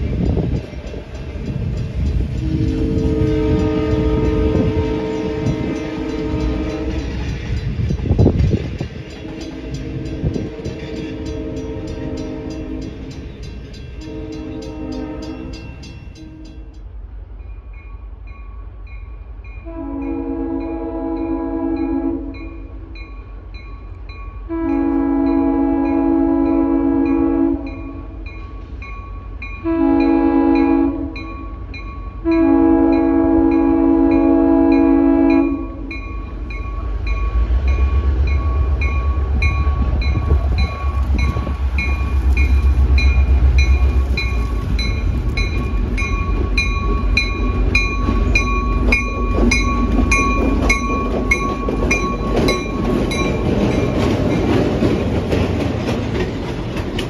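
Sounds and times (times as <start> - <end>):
train wheels clattering on rails: 0.0 - 16.9, 21.8 - 57.0
locomotive air horn blasts: 2.4 - 7.2, 9.2 - 13.2, 14.0 - 16.7, 19.6 - 22.5, 24.5 - 28.2, 29.6 - 31.4, 32.2 - 36.0
locomotive engine rumble: 22.3 - 57.0.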